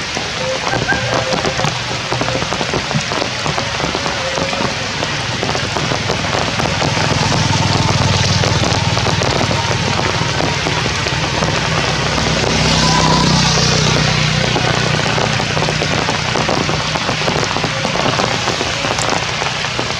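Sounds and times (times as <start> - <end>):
hard rain falling: 0.0 - 19.9
low drone: 0.2 - 5.2.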